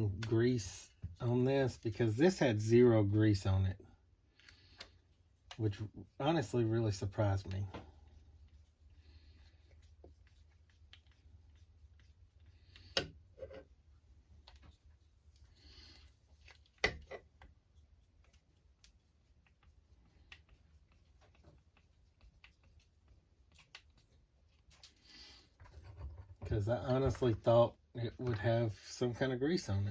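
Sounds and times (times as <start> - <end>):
faint clicks of handling parts: 4.3 - 5.8, 12.7 - 19.0, 22.4 - 28.6.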